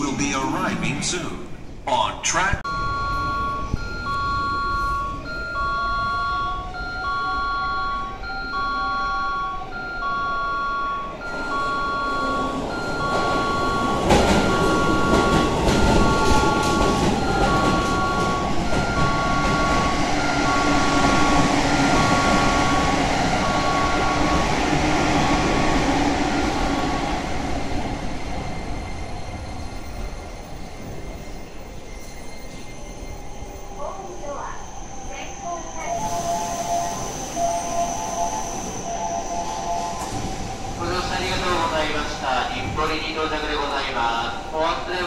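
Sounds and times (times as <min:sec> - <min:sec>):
electronic two-tone beep: 0:02.7 - 0:20.6
train wheels rumbling: 0:02.7 - 0:45.0.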